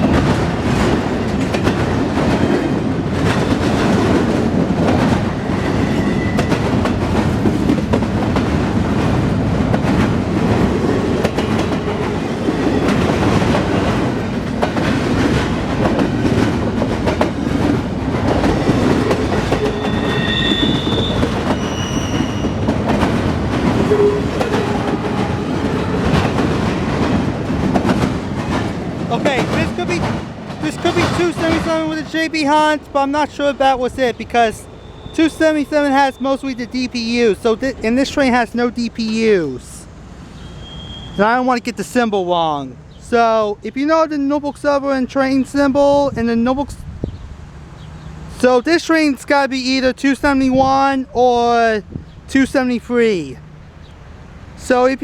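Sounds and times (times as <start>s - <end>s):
wheels clacking over rail joints: 0.0s - 45.8s
freight train rumbling past: 0.0s - 55.0s
high squeals: 5.2s - 6.8s, 18.5s - 22.8s, 23.7s - 26.3s, 33.3s - 37.6s, 40.2s - 41.8s.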